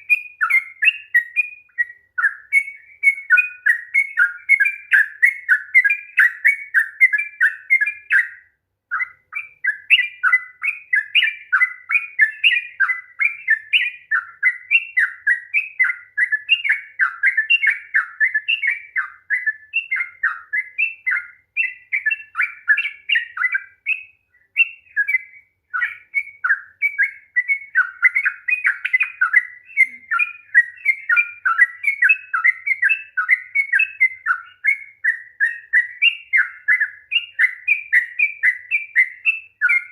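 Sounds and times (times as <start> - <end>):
bird singing bubbling notes: 21.9 - 37.3.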